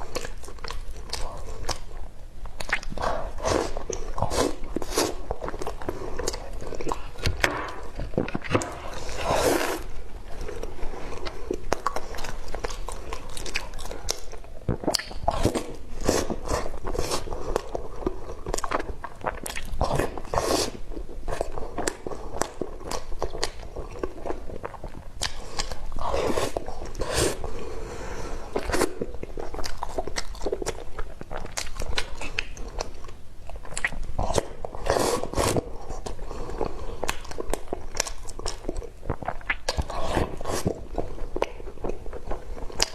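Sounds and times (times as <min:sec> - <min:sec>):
person chewing and biting: 0:00.0 - 0:20.7, 0:28.5 - 0:42.9
wet mouth clicks: 0:02.6 - 0:03.2, 0:13.4 - 0:15.6.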